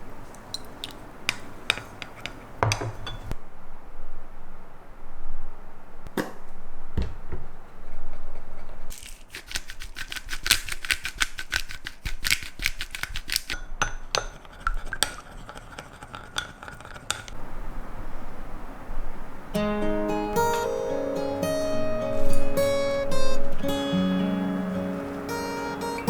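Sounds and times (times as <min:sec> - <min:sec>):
utensils clinking on dishes: 0:00.5 - 0:03.4.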